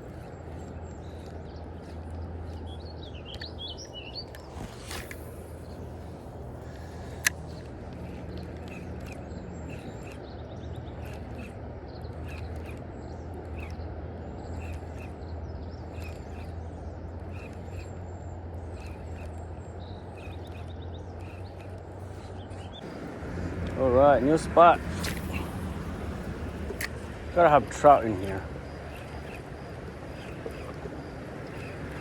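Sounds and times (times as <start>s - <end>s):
birds chirping: 0.0s - 32.0s
sharp click: 24.6s - 25.6s.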